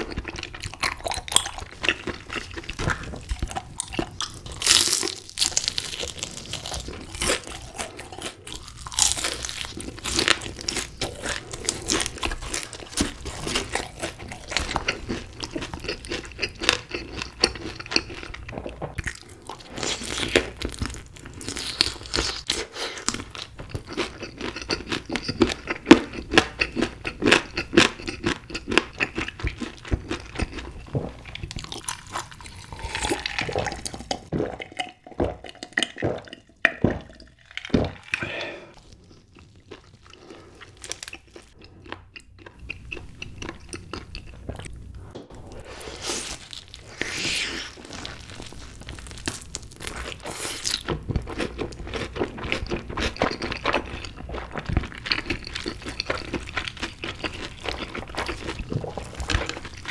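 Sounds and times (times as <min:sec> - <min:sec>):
crunching and chewing fried chicken: 0:00.0 - 0:44.8, 0:45.5 - 0:59.9
wet mouth sounds: 0:30.4 - 0:38.8, 0:57.2 - 0:59.9.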